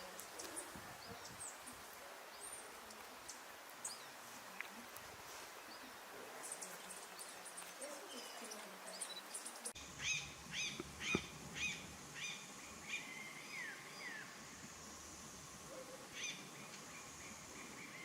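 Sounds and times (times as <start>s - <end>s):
faint high bird chirps: 5.7s - 14.3s.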